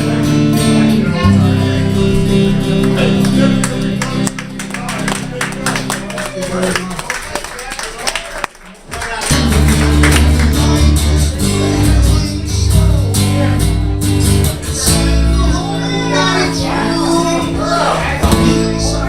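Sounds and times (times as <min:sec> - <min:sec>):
bass line: 0:00.0 - 0:06.7, 0:09.3 - 0:19.0
acoustic guitar chords: 0:00.0 - 0:07.0, 0:09.3 - 0:19.0
person singing: 0:14.3 - 0:19.0.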